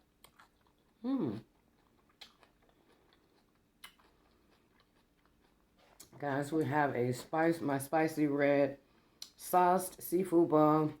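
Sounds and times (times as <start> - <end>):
faint chewing: 0.0 - 7.3.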